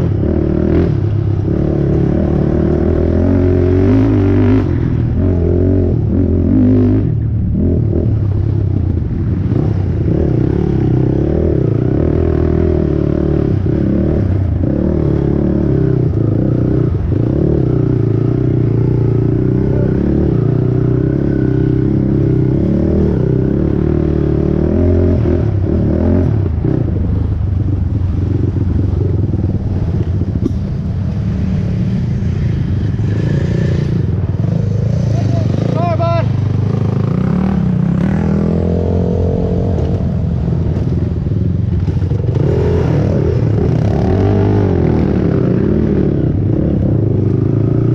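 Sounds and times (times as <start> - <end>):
quad engine revving: 32.9 - 40.9, 41.9 - 47.9.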